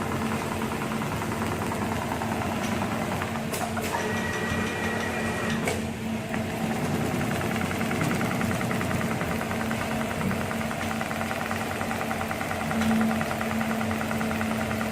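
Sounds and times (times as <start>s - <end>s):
sewing machine humming: 0.0s - 14.9s
rapid stitching ticks: 6.7s - 14.9s.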